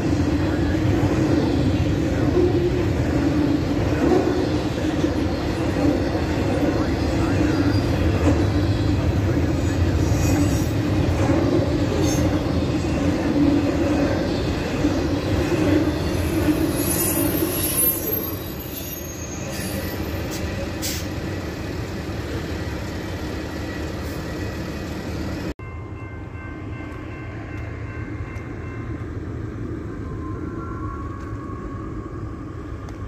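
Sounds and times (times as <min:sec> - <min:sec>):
freight train wheels rumbling: 0:00.0 - 0:33.0
high wheel squeal: 0:14.1 - 0:21.8.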